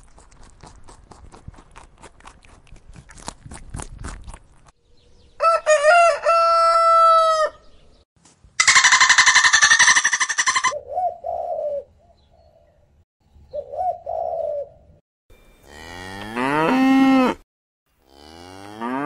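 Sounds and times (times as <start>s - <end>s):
beaver gnawing a carrot: 0.0s - 4.7s
dolphin squealing chatter: 8.6s - 10.8s
loud animal call: 8.6s - 10.8s.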